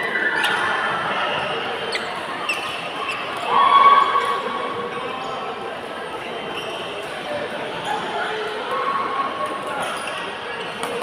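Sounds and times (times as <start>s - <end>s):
court shoes squeaking: 0.0s - 3.5s, 6.2s - 8.6s, 9.4s - 11.0s
players' voices: 0.0s - 11.0s.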